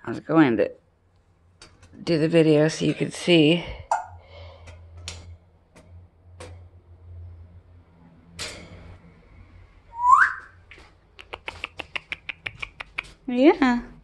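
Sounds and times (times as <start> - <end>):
parrot whistling: 9.9 - 10.6
scattered clicks: 11.2 - 13.2.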